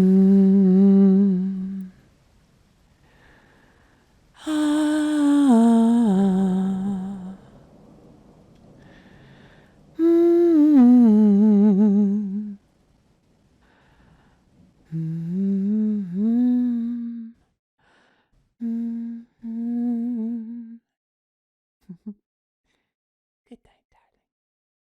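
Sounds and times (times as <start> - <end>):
woman humming a lullaby: 0.0 - 2.0, 4.4 - 7.5, 10.0 - 12.6, 14.9 - 17.4, 18.6 - 20.8.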